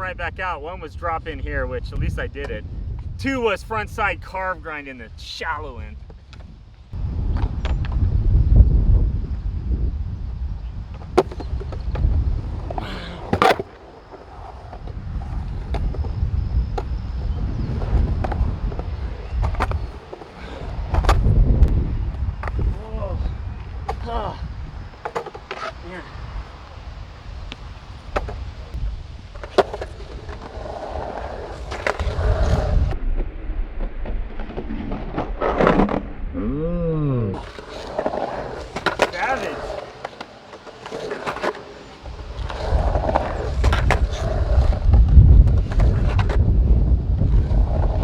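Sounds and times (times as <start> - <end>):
skateboard wheels rolling on concrete: 0.0 - 36.4, 37.2 - 48.0
skateboard clack: 9.0 - 33.0, 37.3 - 48.0.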